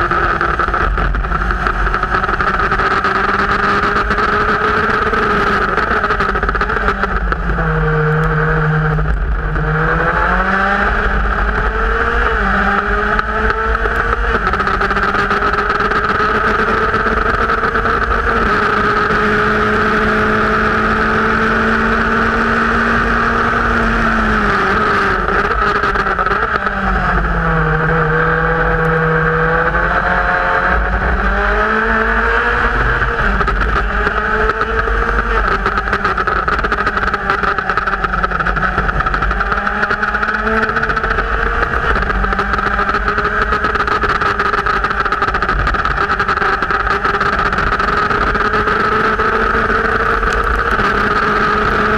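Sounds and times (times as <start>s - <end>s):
race car engine revving: 0.0s - 51.9s
wind and road rush: 0.0s - 51.9s.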